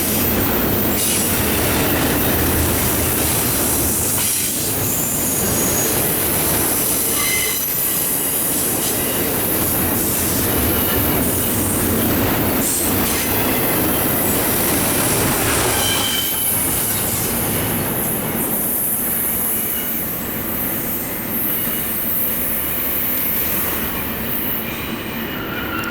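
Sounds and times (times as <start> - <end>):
train wheels clattering on rail: 0.0 - 25.9
wheel squeals: 4.2 - 8.4.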